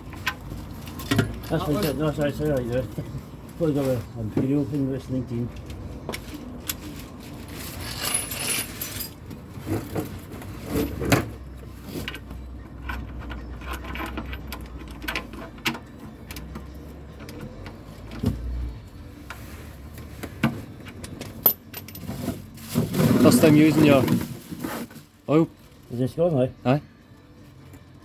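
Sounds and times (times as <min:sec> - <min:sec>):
metal tools clinking: 0:00.1 - 0:04.1, 0:06.3 - 0:09.9, 0:12.0 - 0:16.5, 0:20.9 - 0:24.2.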